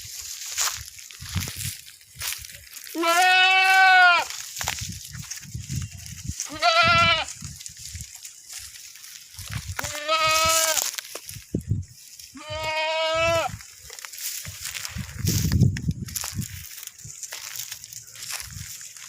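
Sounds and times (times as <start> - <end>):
goats bleating: 2.9 - 4.3, 6.4 - 7.4, 9.7 - 10.9, 12.4 - 13.6.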